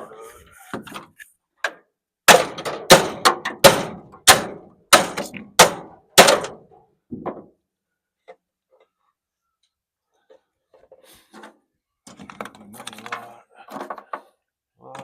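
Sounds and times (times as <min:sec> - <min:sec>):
hammer striking metal: 0:02.3 - 0:06.6.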